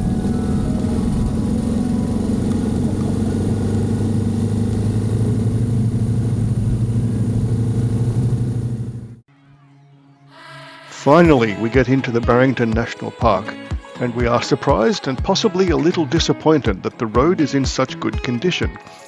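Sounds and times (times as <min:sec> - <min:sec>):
motorcycle engine running: 0:00.0 - 0:09.2
road and wind noise: 0:00.0 - 0:09.2.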